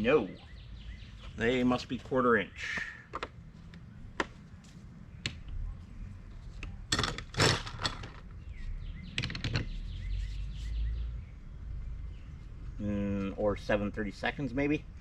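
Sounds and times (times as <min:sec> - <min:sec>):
faint bird chirps: 0:08.4 - 0:12.8.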